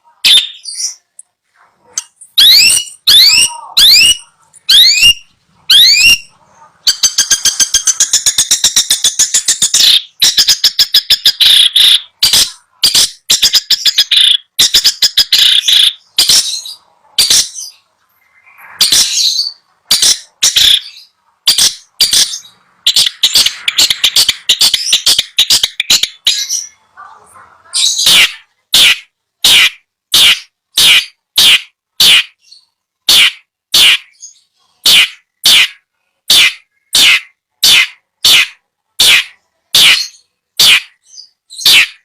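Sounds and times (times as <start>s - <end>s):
shrike harsh chattering: 1.9s - 26.8s.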